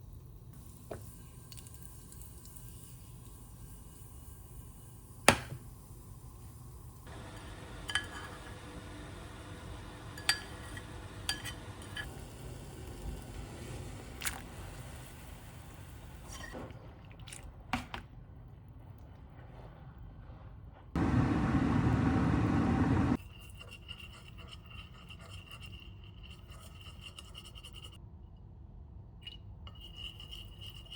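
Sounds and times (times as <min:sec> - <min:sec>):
low steady hum: 0:21.0 - 0:23.2.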